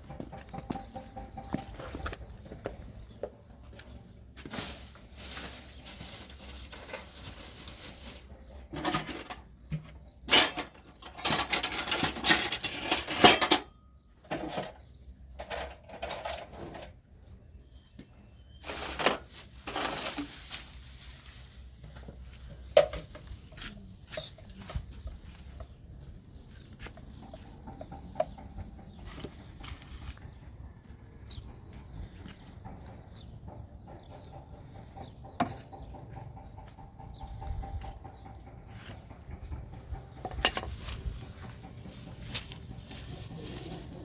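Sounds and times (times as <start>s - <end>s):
dishes and pots clattering: 8.6s - 14.8s.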